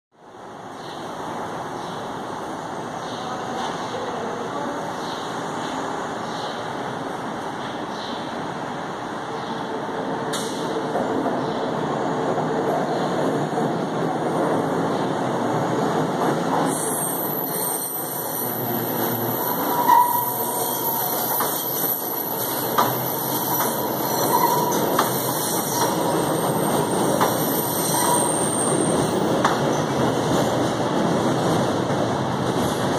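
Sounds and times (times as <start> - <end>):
train running noise: 0.4 - 32.9
wheel squeals: 19.3 - 28.9.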